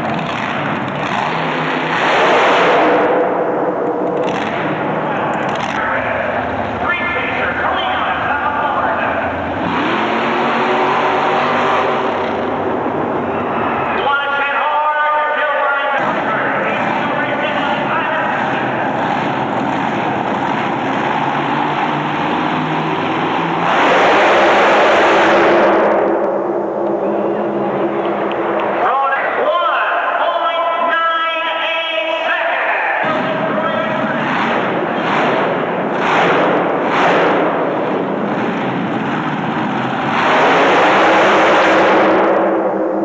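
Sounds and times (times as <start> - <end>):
racing engine running: 0.0 - 14.7, 15.8 - 30.3, 33.0 - 43.0
noisy arena crowd: 0.0 - 43.0.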